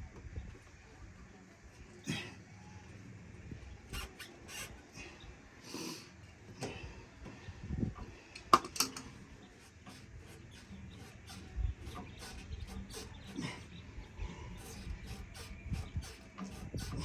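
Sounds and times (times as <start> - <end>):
hand tools clicking on metal: 8.3 - 9.2.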